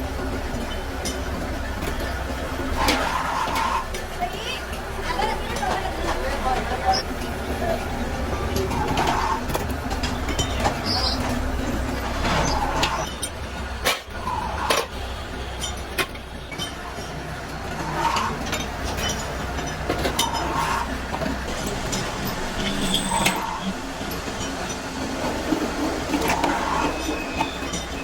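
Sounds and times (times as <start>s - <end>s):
workshop machinery humming: 0.0s - 28.0s.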